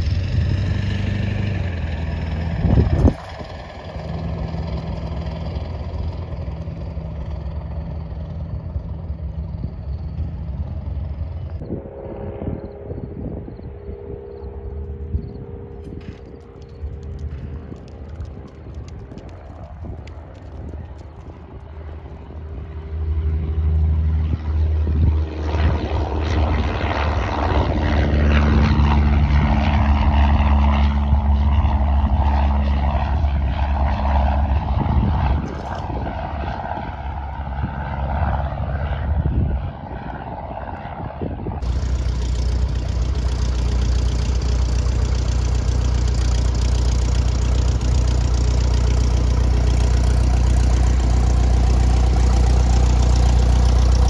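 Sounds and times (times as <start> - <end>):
piston engine running steadily: 0.0 - 13.4, 41.6 - 54.0
light airplane engine and propeller: 0.0 - 54.0.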